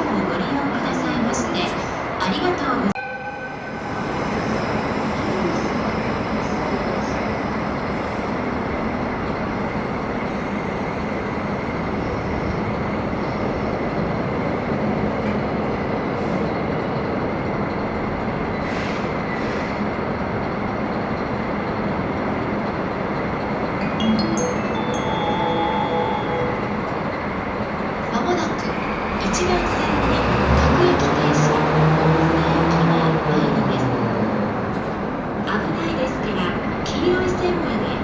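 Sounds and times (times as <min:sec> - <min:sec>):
train wheels rumbling on rail: 0:03.8 - 0:23.8.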